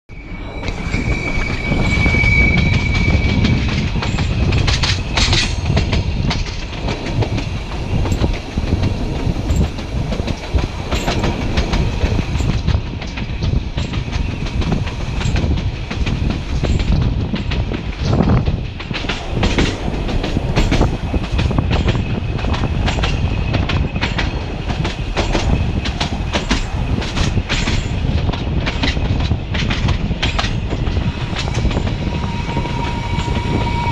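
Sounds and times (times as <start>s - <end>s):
thin high tone: 0.1s - 4.4s
train carriages rumbling: 0.1s - 33.9s
wheels clicking over rail joints: 4.0s - 32.0s.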